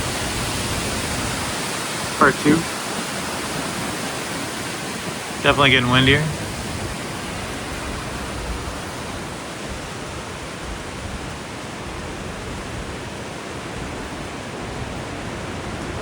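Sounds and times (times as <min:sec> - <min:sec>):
wind buffeting microphone: 0:06.3 - 0:16.0.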